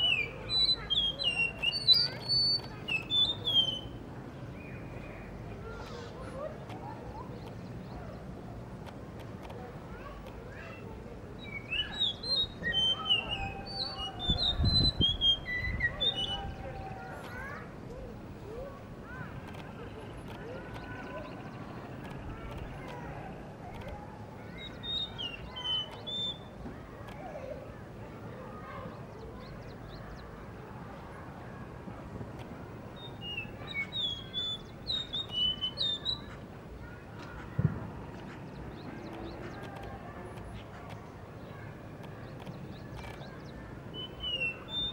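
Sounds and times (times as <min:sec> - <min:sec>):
thrush singing whistled notes: 0:00.0 - 0:04.0, 0:11.4 - 0:16.5, 0:33.0 - 0:36.3, 0:43.2 - 0:44.9.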